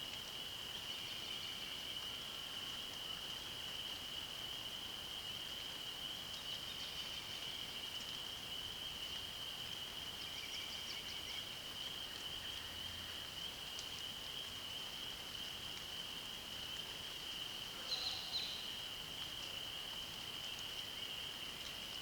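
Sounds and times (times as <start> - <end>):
faint bird chirps: 17.8 - 18.7.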